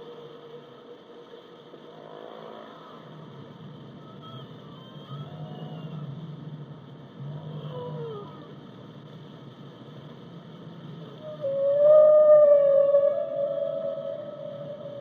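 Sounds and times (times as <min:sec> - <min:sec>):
whale song: 0:11.2 - 0:15.0.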